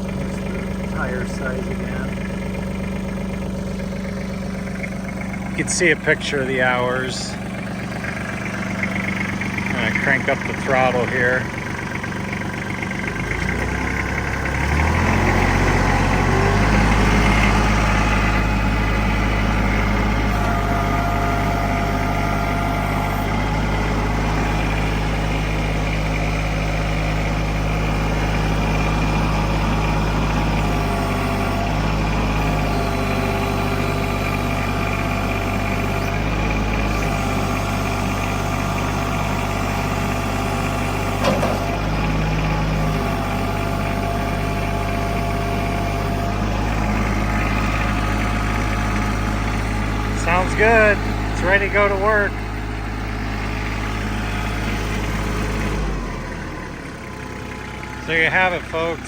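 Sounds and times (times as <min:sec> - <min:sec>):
tractor diesel engine: 0:00.0 - 0:59.0.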